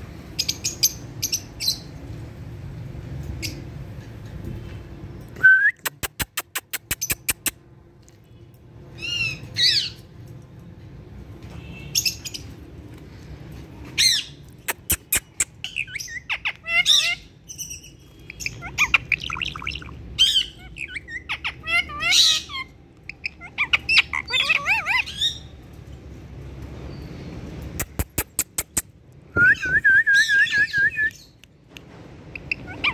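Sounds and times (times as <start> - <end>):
sharp clicks: 5.8 - 7.6, 14.6 - 15.6, 27.8 - 28.9
parrots squawking and chirping: 9.0 - 10.0, 14.0 - 25.6, 32.3 - 32.9.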